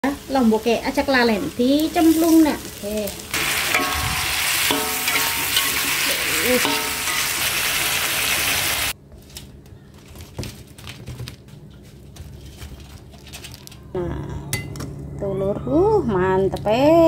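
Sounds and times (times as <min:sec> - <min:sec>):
fish sizzling in a wok: 0:00.0 - 0:09.0
metal spatula stirring: 0:03.7 - 0:07.5.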